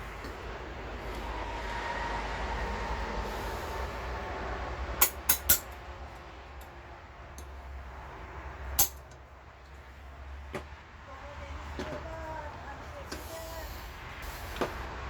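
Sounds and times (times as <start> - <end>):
metal parts clinking: 8.8 - 9.2.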